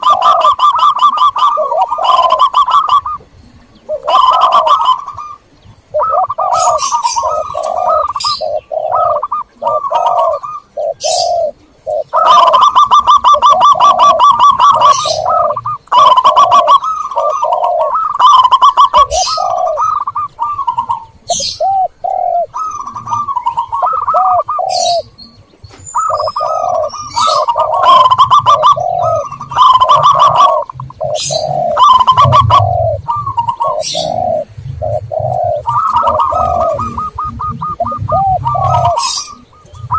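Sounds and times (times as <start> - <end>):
doves cooing: 0.0 - 39.9
high chirping notes: 0.0 - 39.9.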